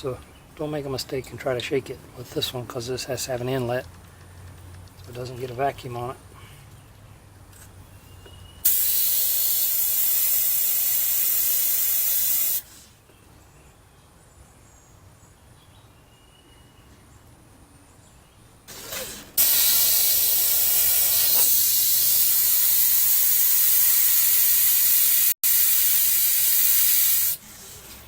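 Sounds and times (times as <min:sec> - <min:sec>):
airbrush spraying hiss: 0:08.7 - 0:12.7, 0:18.7 - 0:27.5.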